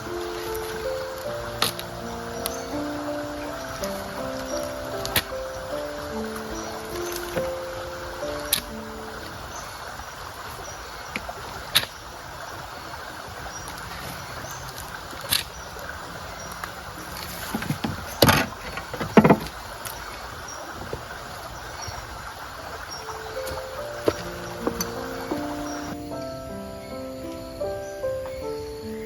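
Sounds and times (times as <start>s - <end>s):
outdoor background hiss: 0.0s - 29.0s
sharp knocks: 17.5s - 19.6s.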